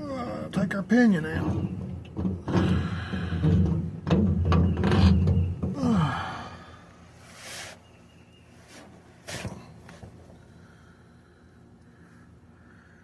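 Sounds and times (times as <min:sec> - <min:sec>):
man groaning with strain: 0:05.8 - 0:06.8
man sighing: 0:05.8 - 0:06.9.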